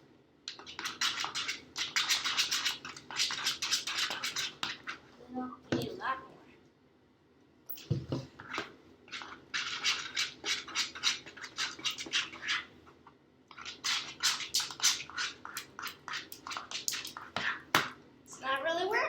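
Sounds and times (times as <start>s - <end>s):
spoon stirring slime in bowl: 0.5s - 5.1s, 7.7s - 18.0s.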